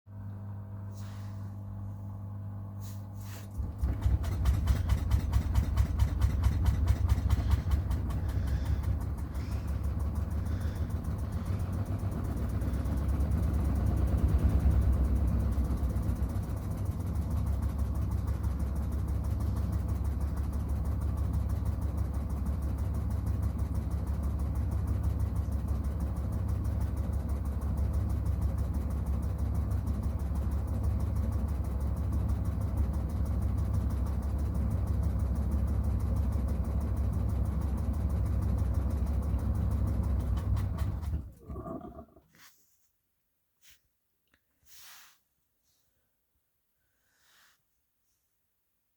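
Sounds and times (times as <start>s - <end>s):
washing machine drum spinning: 3.6s - 10.4s.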